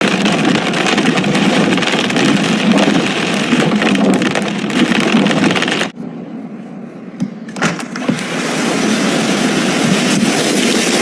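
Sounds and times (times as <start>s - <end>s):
hail clattering: 0.0s - 5.9s, 8.2s - 11.0s.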